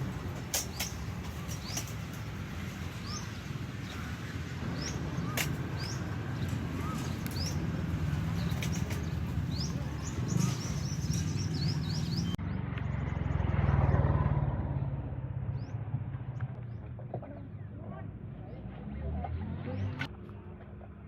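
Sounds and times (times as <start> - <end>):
small birds chirping: 0.0 - 13.2.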